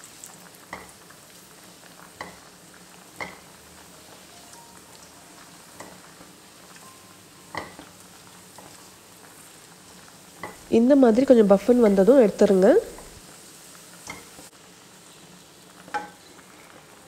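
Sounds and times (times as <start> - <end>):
raisins sizzling in fat: 0.0 - 17.0
spatula tapping pan: 0.7 - 1.0, 2.1 - 2.5, 3.2 - 3.6, 5.7 - 6.2, 7.5 - 8.9, 10.4 - 10.7, 14.0 - 14.4, 15.9 - 16.2.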